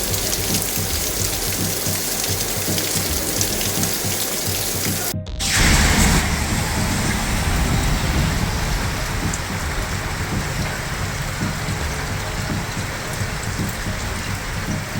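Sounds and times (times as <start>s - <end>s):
heavy rain pouring: 0.0s - 14.9s
uneven low rumble: 5.0s - 14.9s.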